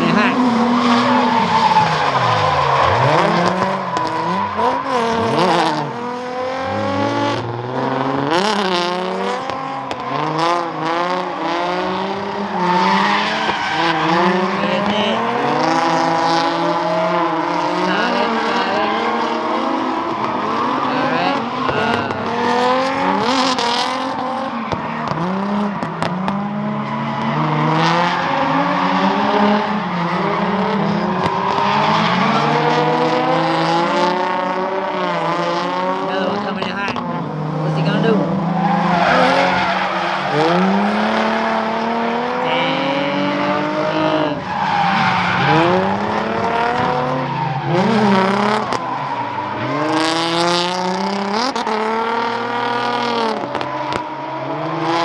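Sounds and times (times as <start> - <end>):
car engines revving: 0.0 - 55.0
tyre squeal: 0.1 - 7.2, 38.5 - 41.6.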